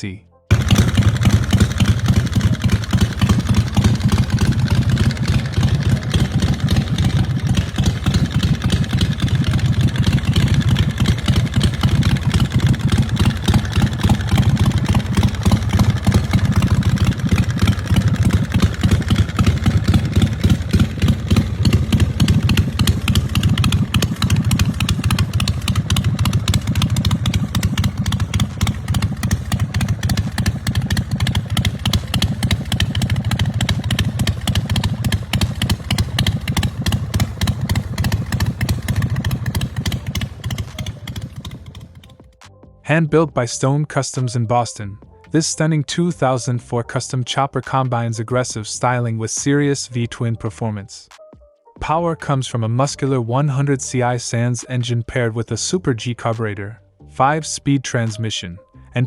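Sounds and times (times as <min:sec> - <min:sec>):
motorcycle engine running: 0:00.5 - 0:42.5.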